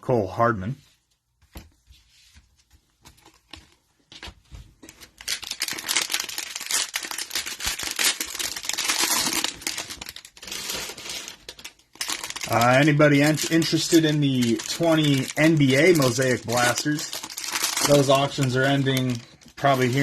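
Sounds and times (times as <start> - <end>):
cellophane wrapper crinkling: 4.8 - 20.0.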